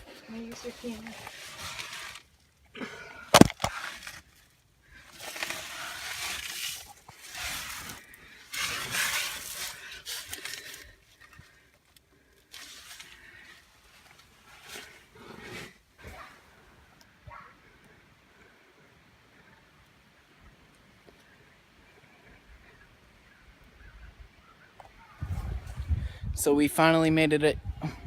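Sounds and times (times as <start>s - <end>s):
crunching and scraping of ice: 0.0s - 16.4s
sharp crack of ice: 3.3s - 4.3s.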